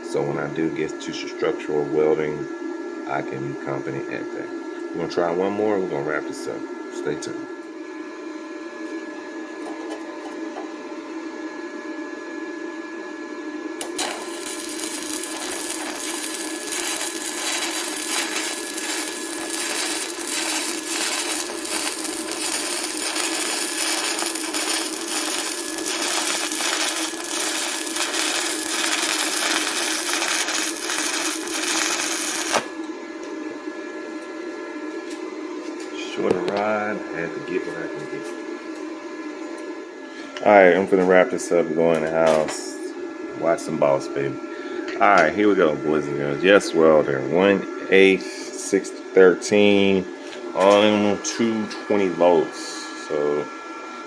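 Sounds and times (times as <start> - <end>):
steady hum: 13.2 - 54.0
welding arc striking click: 13.8 - 32.7
welding arc crackling sizzle: 13.8 - 32.9.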